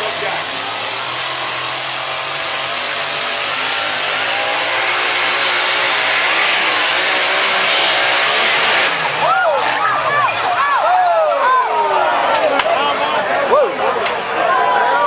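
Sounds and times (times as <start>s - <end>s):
engine running at full throttle: 0.0s - 10.3s.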